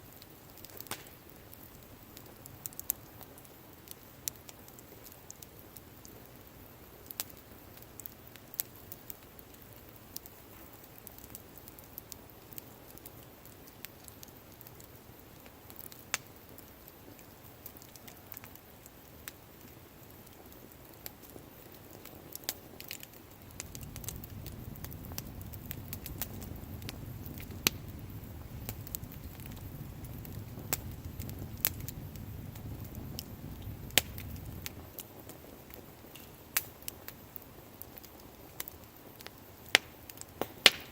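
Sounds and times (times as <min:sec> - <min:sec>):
wood fire crackling and popping: 0:00.0 - 0:40.9
steady low rumble: 0:23.2 - 0:35.0.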